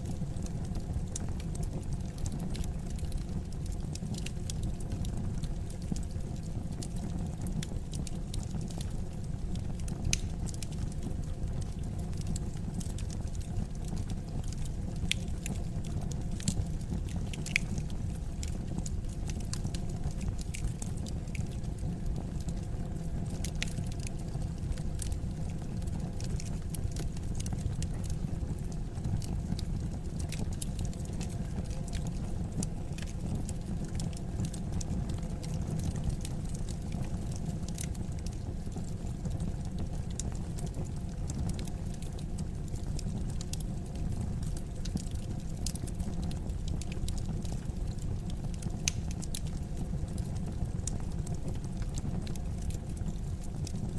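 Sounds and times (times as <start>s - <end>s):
wood fire crackling and popping: 0.0s - 53.9s.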